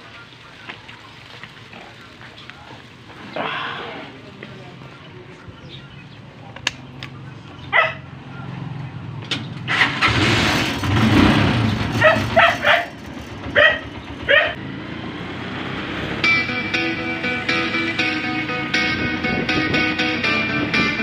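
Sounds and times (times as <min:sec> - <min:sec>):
motorcycle engine running: 0:04.3 - 0:21.0
dog barking: 0:07.7 - 0:08.2, 0:12.0 - 0:14.6
guitar music: 0:15.0 - 0:21.0.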